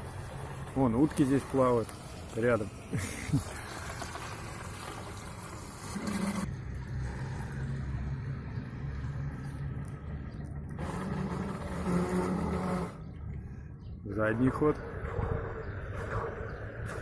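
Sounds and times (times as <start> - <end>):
rc boat motor humming: 5.9 - 7.8, 10.7 - 13.4.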